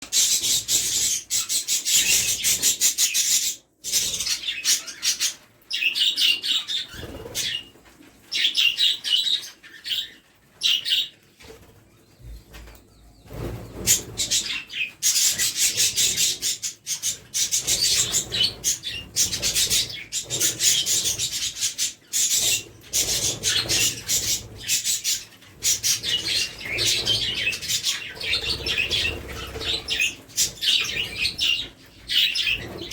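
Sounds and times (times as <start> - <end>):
budgerigars chirping: 0.1 - 7.7, 8.3 - 11.2, 13.4 - 32.9
wings flapping: 6.8 - 8.1, 12.5 - 32.9.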